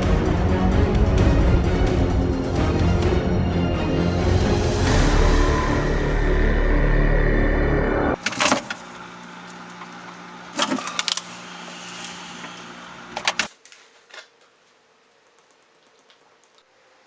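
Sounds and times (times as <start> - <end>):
eerie music: 0.0 - 8.2
low hum: 0.0 - 10.6.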